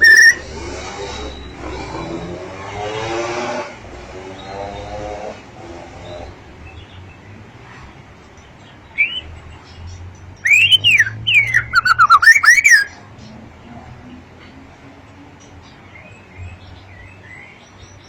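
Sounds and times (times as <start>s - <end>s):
bird whistled song: 0.0s - 0.5s, 9.0s - 9.3s, 10.4s - 13.0s.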